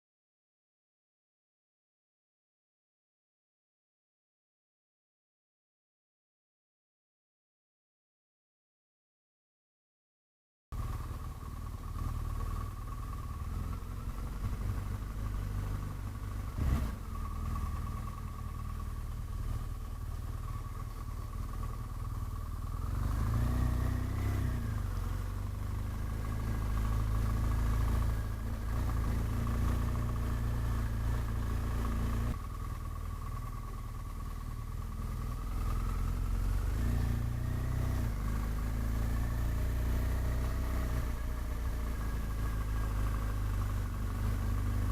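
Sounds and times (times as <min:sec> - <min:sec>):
motorcycle engine running: 0:10.7 - 0:44.9.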